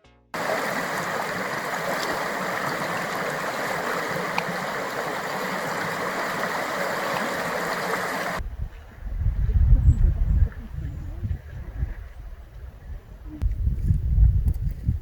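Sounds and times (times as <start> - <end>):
running water rushing: 0.4 - 8.4.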